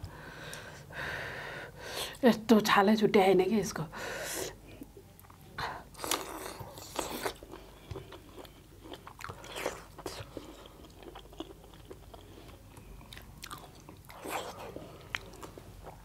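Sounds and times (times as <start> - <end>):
people chewing food: 4.6 - 16.0.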